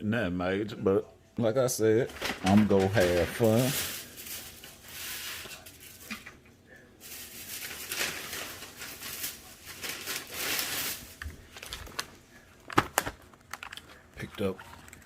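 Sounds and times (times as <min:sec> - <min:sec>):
packaging rustling and crinkling: 0:02.1 - 0:06.3, 0:07.0 - 0:15.0.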